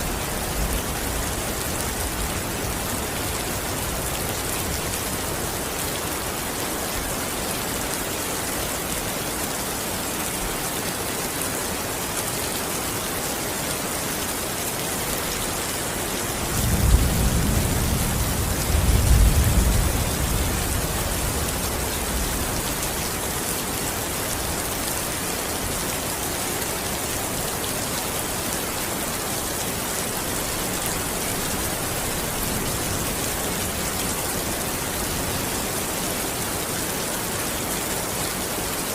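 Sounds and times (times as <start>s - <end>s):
heavy rain falling: 0.0s - 38.9s
low rumble of thunder: 16.4s - 22.8s.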